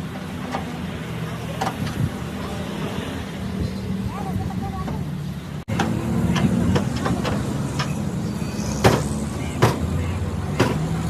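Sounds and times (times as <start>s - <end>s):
sharp knocks: 8.8s - 9.9s.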